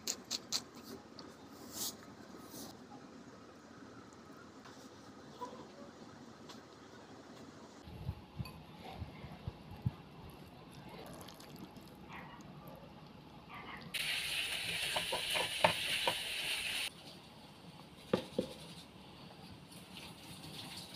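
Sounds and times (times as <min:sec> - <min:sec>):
meat sizzling in a frying pan: 0:14.0 - 0:16.9.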